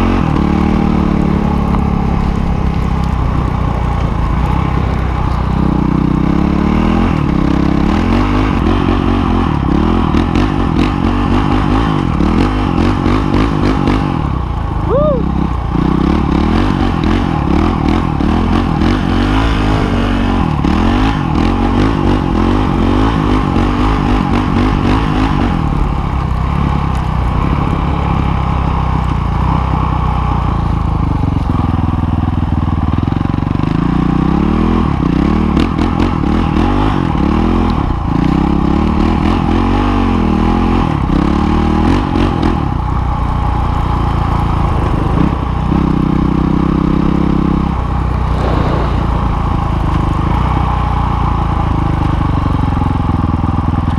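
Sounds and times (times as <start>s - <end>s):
dirt bike engine revving: 0.0s - 30.2s, 33.2s - 53.8s.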